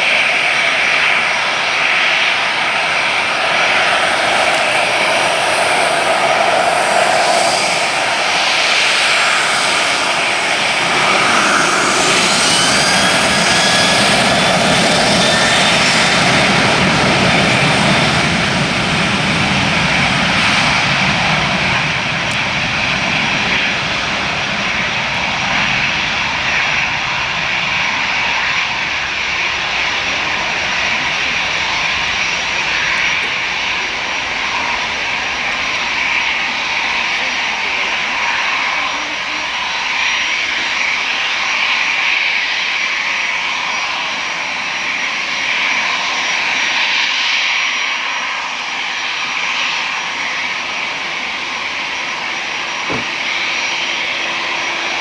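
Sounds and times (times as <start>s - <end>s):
jet engines running: 0.0s - 55.0s
faint descending whine: 0.6s - 41.5s.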